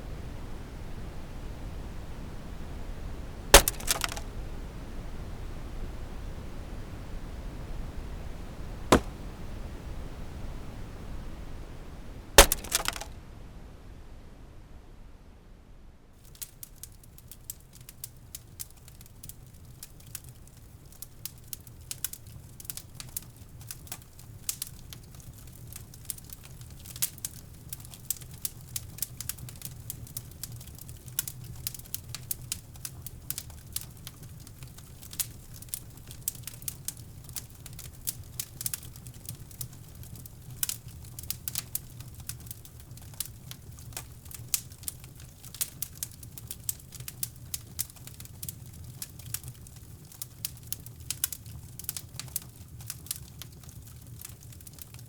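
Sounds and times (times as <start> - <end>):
wood fire crackling: 3.5 - 4.3, 8.9 - 9.2, 12.4 - 13.1, 16.2 - 55.0.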